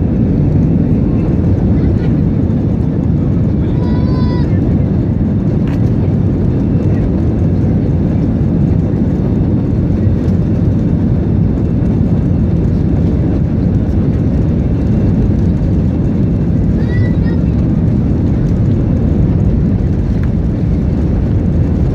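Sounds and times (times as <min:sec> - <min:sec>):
airplane engines rumbling: 0:00.0 - 0:21.9.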